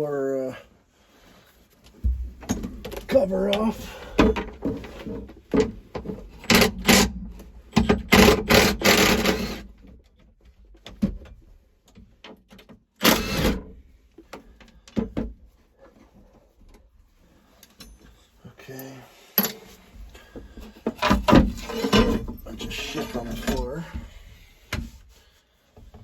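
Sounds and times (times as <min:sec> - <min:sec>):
floor cover clunking and rattling: 0:01.9 - 0:07.0, 0:19.4 - 0:24.9.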